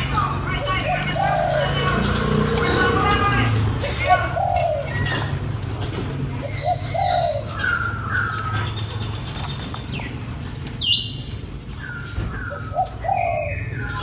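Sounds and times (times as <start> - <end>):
small birds chirping: 0.0 - 14.0
dove cooing: 0.6 - 8.7, 11.8 - 14.0.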